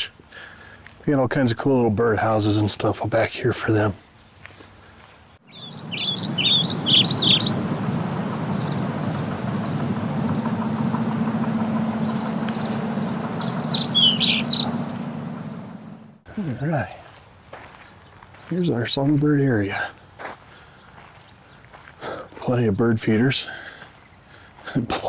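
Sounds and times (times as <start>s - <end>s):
low background hum: 5.5s - 16.2s
songbird chirping: 5.5s - 16.2s.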